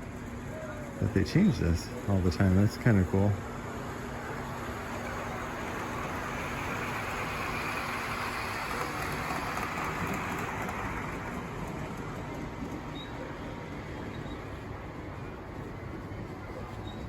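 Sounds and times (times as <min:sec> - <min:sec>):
model train rolling on track: 0:00.0 - 0:17.0.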